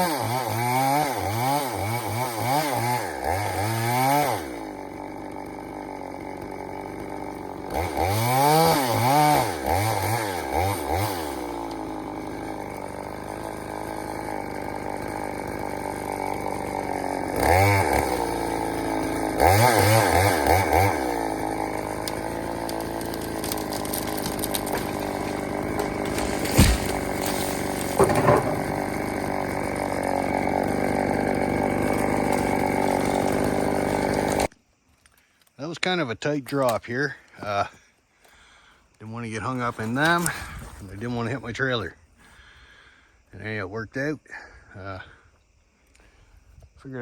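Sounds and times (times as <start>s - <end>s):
chainsaw revving: 0.0s - 34.5s.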